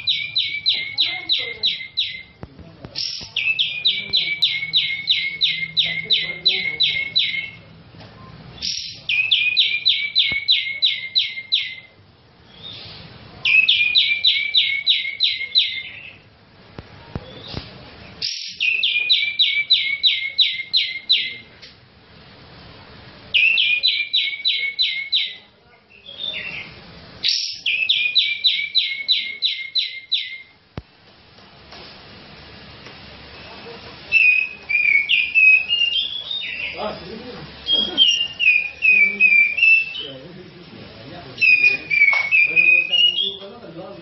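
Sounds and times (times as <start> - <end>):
bulbul whistled song: 3.1 - 7.6, 8.6 - 16.2, 18.2 - 21.4, 23.4 - 30.6, 34.1 - 36.8, 37.7 - 40.1, 41.4 - 43.5.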